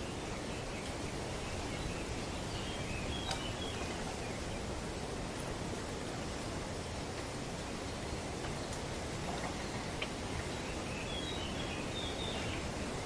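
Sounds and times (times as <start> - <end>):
bird chirps: 0.0 - 4.6, 10.4 - 12.7
wind rustling leaves: 0.0 - 13.0.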